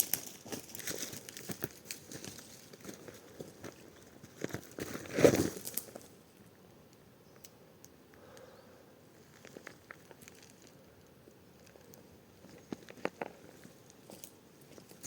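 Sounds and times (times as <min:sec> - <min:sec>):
rustling and crackling: 0:00.0 - 0:06.1, 0:09.2 - 0:15.0.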